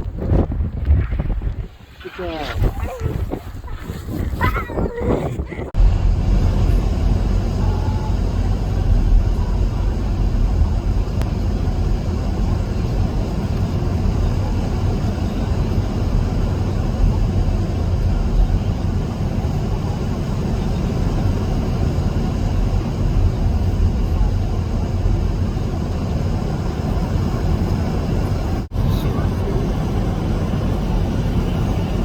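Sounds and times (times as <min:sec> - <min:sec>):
strong wind on microphone: 0:00.0 - 0:20.3.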